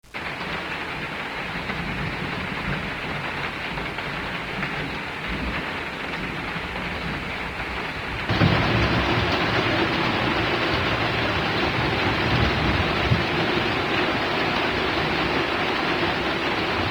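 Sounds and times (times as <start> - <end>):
heavy rain: 0.0 - 16.9
low rumble: 8.2 - 16.9.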